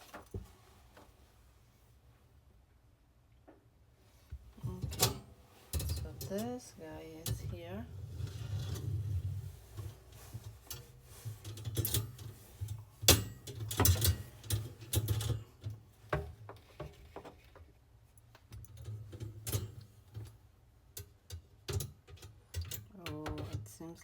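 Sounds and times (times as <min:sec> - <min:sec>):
metal shelf parts clinking: 0:10.7 - 0:15.4.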